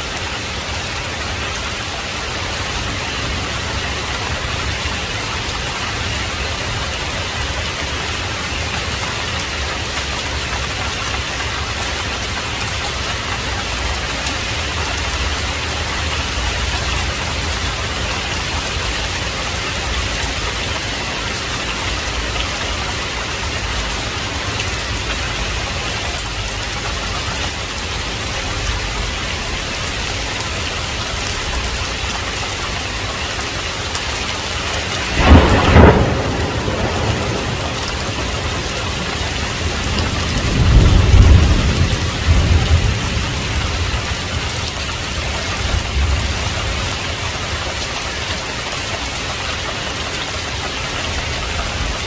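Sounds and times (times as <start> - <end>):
heavy rain falling: 0.0 - 52.0
loud thunderclap: 34.6 - 44.6.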